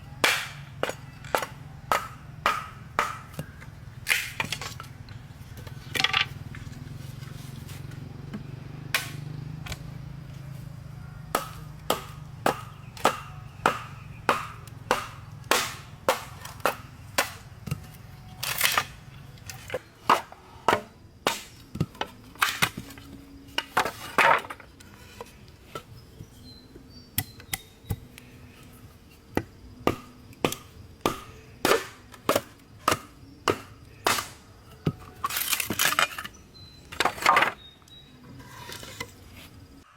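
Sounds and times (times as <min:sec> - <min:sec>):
chopping blows on wood: 0:00.2 - 0:04.6, 0:08.9 - 0:09.8, 0:11.3 - 0:17.9.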